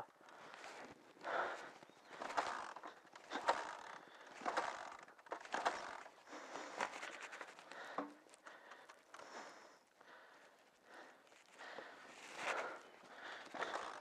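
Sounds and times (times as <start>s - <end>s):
motorcycle kick-starter clicking: 2.2s - 6.1s.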